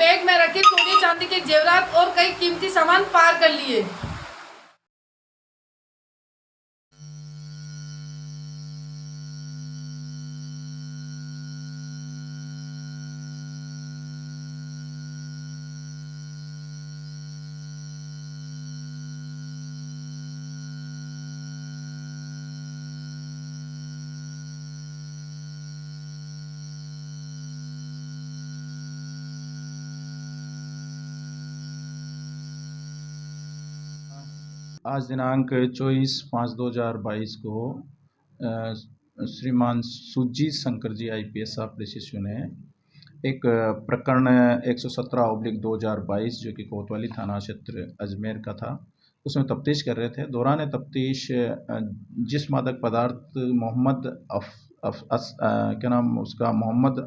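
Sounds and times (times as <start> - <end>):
electrical hum: 7.0 - 34.8.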